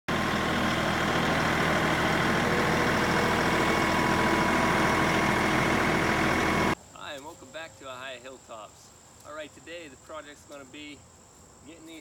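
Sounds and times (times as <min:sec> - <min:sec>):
tractor diesel engine running: 0:00.1 - 0:06.8.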